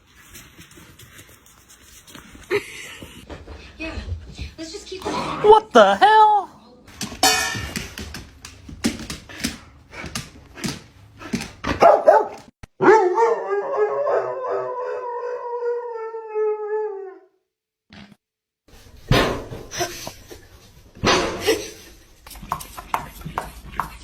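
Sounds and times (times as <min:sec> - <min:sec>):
dog barking and howling: 0:11.8 - 0:17.3.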